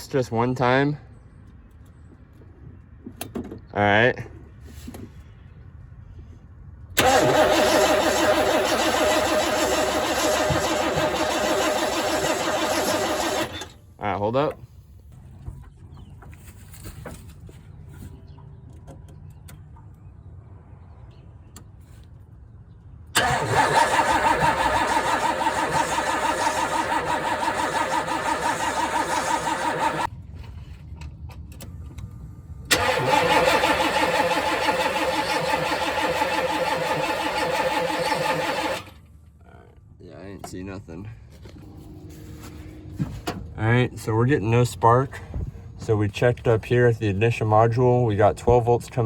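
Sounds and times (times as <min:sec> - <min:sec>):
engine cranking by starter: 0:07.0 - 0:13.8, 0:23.2 - 0:30.1, 0:32.6 - 0:39.1.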